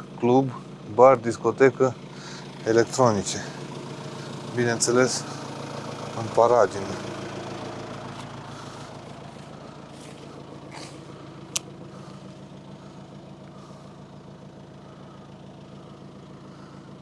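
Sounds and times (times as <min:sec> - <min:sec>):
vehicle engine idling: 0:00.0 - 0:17.0
sharp click: 0:11.5 - 0:11.7.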